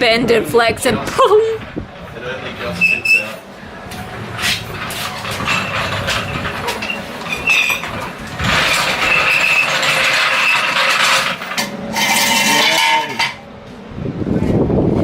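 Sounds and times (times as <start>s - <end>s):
metal scraping and squealing: 1.5s - 13.5s
creaking squeak: 2.6s - 13.4s.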